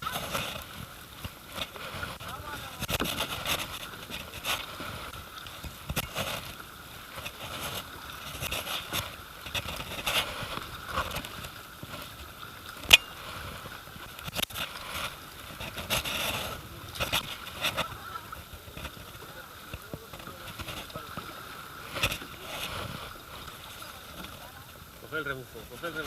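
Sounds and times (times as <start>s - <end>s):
paddle splashing in water: 0.0s - 26.0s.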